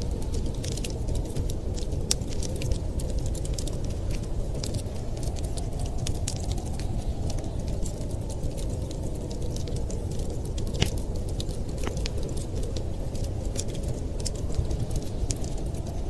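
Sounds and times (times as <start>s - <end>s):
low rumble of fire: 0.0s - 16.0s
wood fire snaps and pops: 0.0s - 16.0s.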